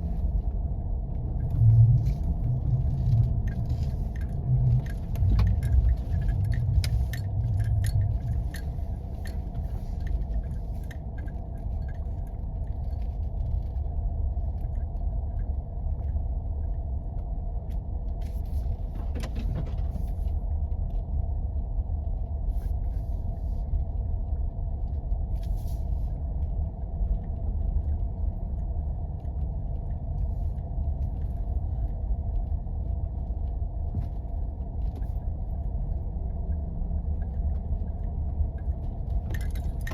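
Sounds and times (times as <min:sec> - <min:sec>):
vehicle driving on snow: 0:00.0 - 0:12.1
light clicks and rattles: 0:00.1 - 0:39.9.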